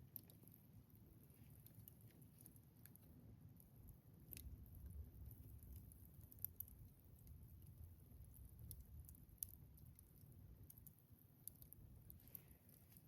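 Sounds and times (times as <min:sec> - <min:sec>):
low fire rumble: 0:00.0 - 0:13.0
campfire crackling and popping: 0:01.6 - 0:13.0.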